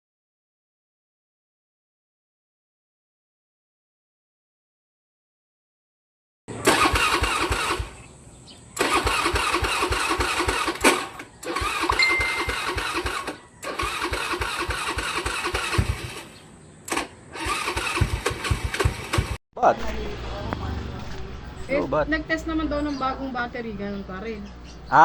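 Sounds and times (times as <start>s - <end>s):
motorcycle electric starter cranking: 6.5s - 8.0s, 8.8s - 19.4s.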